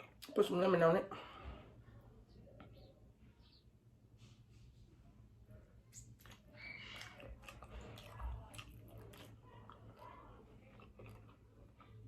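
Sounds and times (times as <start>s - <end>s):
person chewing food: 5.8s - 12.0s.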